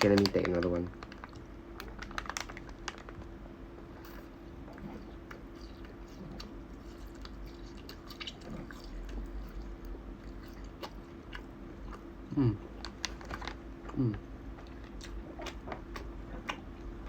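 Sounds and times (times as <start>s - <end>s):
steady low hum: 0.0s - 17.0s
chewing with wet clicks: 4.0s - 17.0s.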